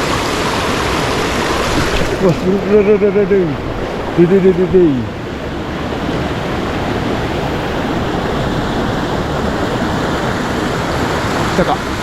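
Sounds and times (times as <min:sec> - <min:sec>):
fast-flowing stream water: 0:00.0 - 0:12.0.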